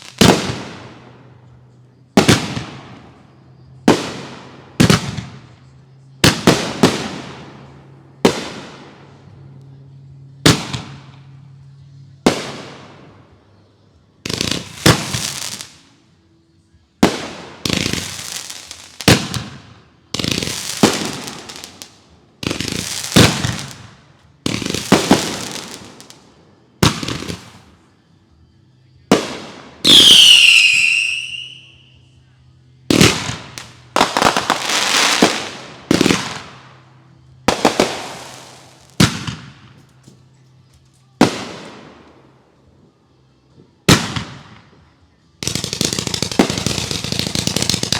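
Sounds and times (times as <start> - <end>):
fireworks bangs with crackle: 0.0 - 1.1, 2.2 - 9.2, 14.2 - 15.8, 17.0 - 27.7, 29.0 - 31.7, 32.9 - 36.8, 37.5 - 40.0, 41.2 - 42.0, 43.9 - 44.7, 45.4 - 47.9
falling firework whistle: 29.8 - 32.2.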